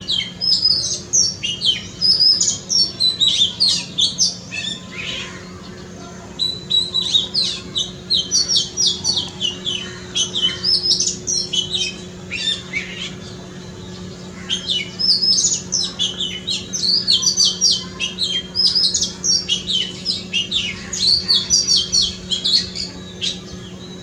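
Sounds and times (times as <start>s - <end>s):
bird singing whistled trills: 0.0s - 24.0s.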